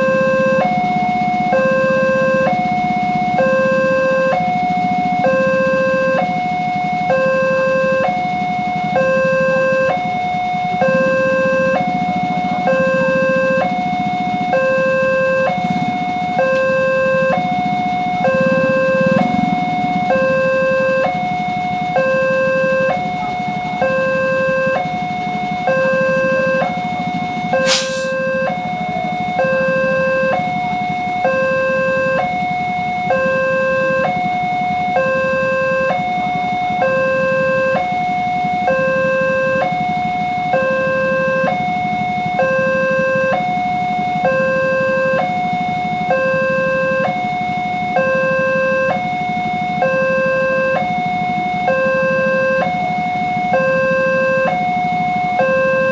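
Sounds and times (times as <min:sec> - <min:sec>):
low steady rumble: 0:00.0 - 0:41.4
level crossing two-tone alarm: 0:00.0 - 0:55.9.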